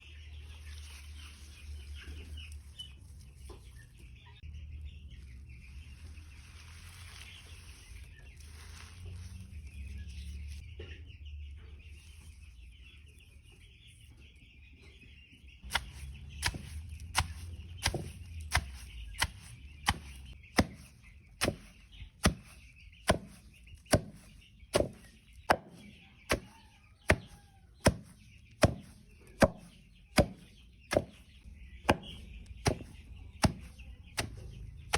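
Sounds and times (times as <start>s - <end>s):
chicks peeping: 0.0s - 34.9s
sharp chopping blows: 15.7s - 26.5s, 27.1s - 31.2s.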